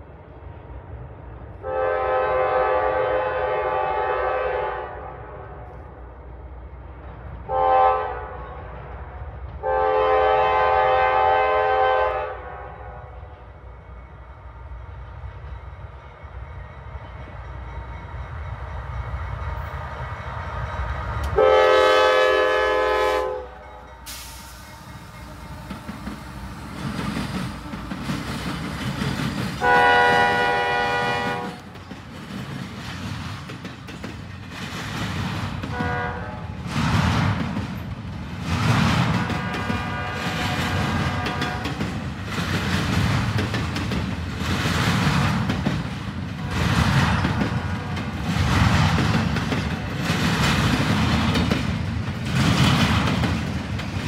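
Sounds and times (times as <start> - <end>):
diesel locomotives passing: 0.0 - 54.0
locomotive air horn blasts: 1.6 - 5.2, 7.5 - 8.5, 9.6 - 13.1, 21.4 - 26.5, 29.6 - 31.6, 35.7 - 36.5, 39.2 - 41.7
container cars rumbling and clattering: 36.5 - 54.0.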